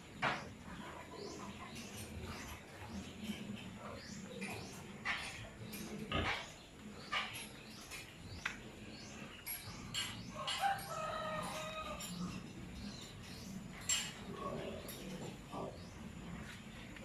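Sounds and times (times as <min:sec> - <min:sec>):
rooster crowing: 0:10.3 - 0:12.2.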